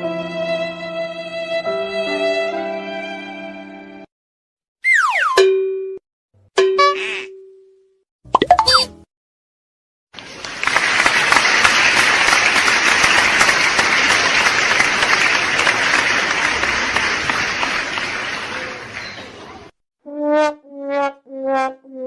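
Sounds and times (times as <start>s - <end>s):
crowd applause: 10.2s - 19.8s.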